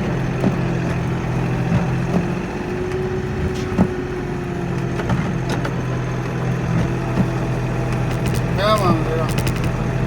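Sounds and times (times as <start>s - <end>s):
tractor diesel engine running: 0.0s - 10.0s
sharp knocks and clicks: 8.0s - 8.5s, 9.3s - 9.8s.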